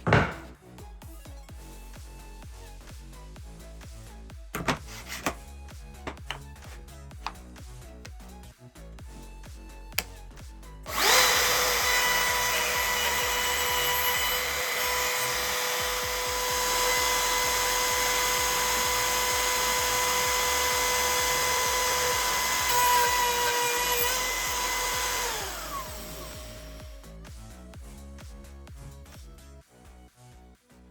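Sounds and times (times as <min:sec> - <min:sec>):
power tool motor whining: 0:04.6 - 0:05.4, 0:10.9 - 0:27.0.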